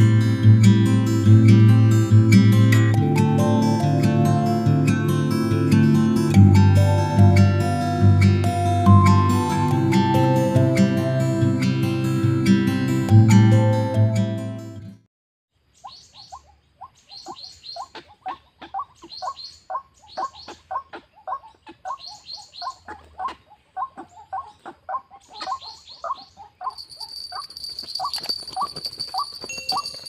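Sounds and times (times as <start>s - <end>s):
high-pitched drone: 3.0s - 14.2s.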